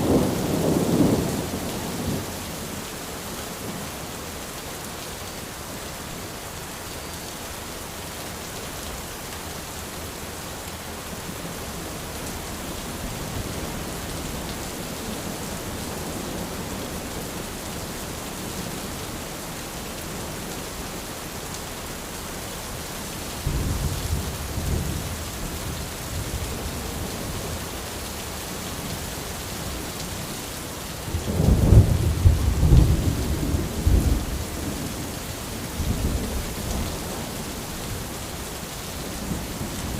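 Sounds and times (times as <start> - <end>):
rain on an umbrella: 0.0 - 39.9
thunder rumbling: 31.2 - 35.1.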